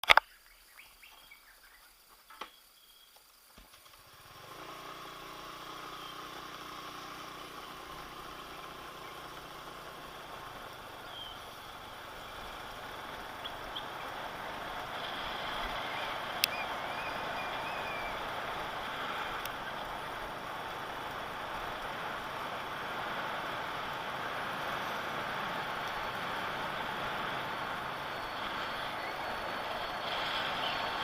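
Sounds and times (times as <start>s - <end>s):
faint bird chirps: 0.2s - 3.3s, 5.9s - 6.4s, 11.0s - 14.2s, 15.4s - 18.3s
vehicle engine running: 3.9s - 31.0s.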